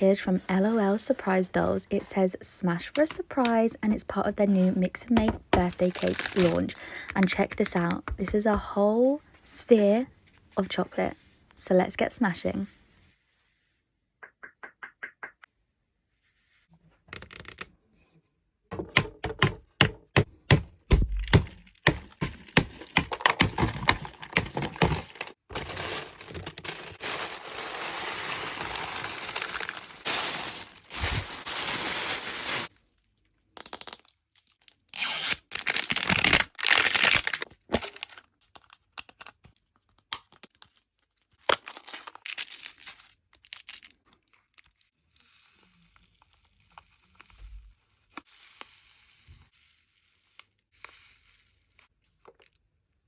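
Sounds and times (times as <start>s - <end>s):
packaging crinkling and tearing: 5.6s - 8.0s, 21.5s - 32.8s, 33.6s - 44.9s
chocolate shell cracking: 33.5s - 34.2s.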